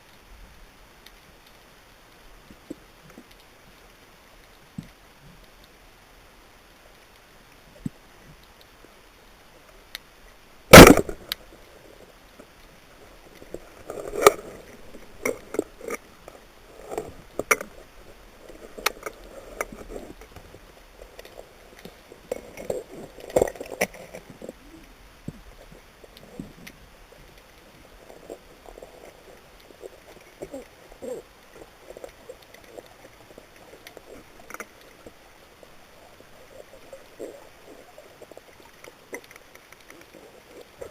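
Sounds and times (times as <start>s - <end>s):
speargun firing underwater: 10.7s - 11.4s.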